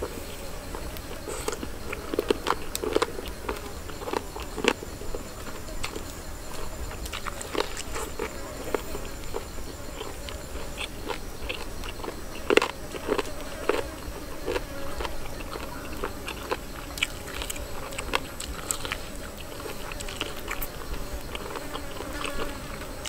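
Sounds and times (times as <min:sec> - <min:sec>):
man chewing with lip-smacks: 0:00.0 - 0:23.0.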